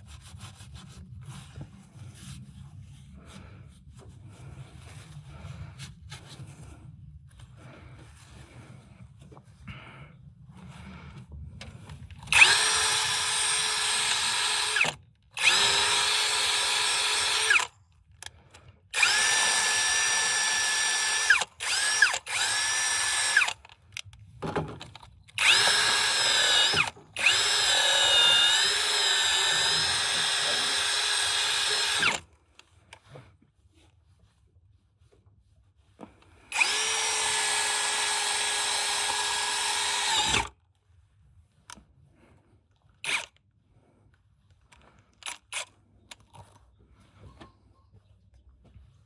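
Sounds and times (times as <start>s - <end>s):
power drill motor whining: 12.2s - 17.7s, 18.9s - 23.7s, 25.3s - 32.3s, 36.5s - 40.5s, 43.0s - 43.4s.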